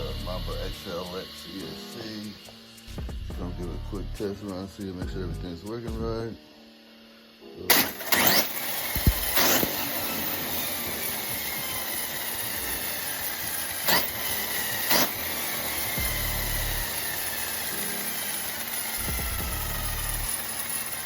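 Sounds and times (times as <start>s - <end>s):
steady hiss: 0.0s - 3.1s
electric motor whine: 0.0s - 21.0s
sharp clicks: 7.7s - 10.7s, 11.4s - 20.8s.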